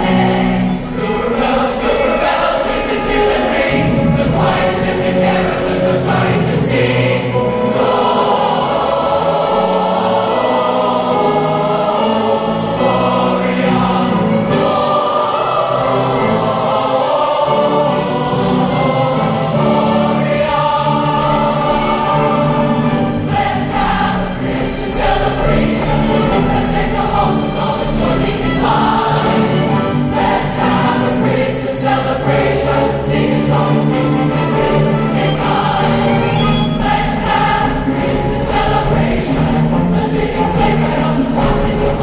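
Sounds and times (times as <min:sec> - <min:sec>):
large choir singing: 0:00.0 - 0:42.0
orchestra playing: 0:00.0 - 0:42.0
wind ensemble playing: 0:00.0 - 0:42.0.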